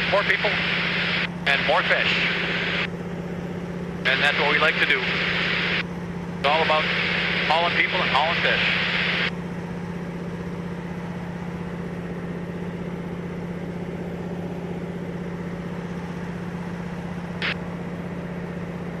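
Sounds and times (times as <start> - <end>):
propeller plane engine droning: 0.0 - 19.0.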